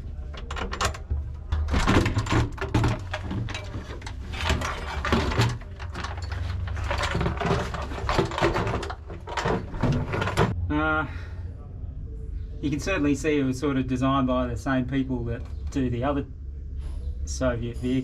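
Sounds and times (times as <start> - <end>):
metal panels and tools clanking: 0.0 - 10.6
steady low hum: 0.0 - 18.0.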